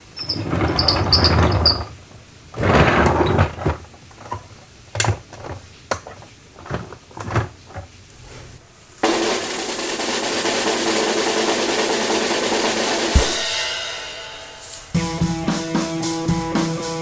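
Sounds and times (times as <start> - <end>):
toy vehicles scraping or rolling: 0.0 - 8.6.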